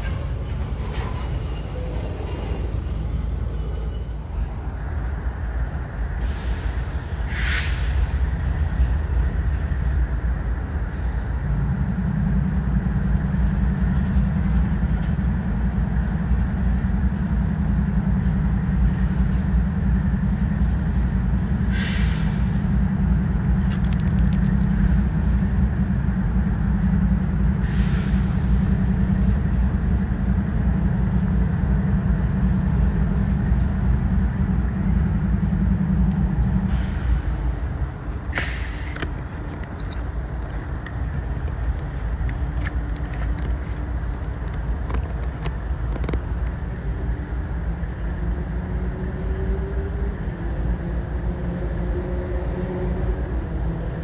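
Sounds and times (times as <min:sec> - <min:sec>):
high wheel squeals: 0:00.0 - 0:04.8
freight train rumbling past: 0:00.0 - 0:54.0.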